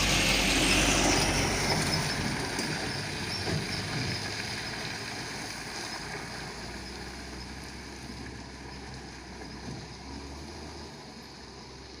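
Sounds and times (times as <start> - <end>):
diesel truck engine humming: 0.0 - 12.0.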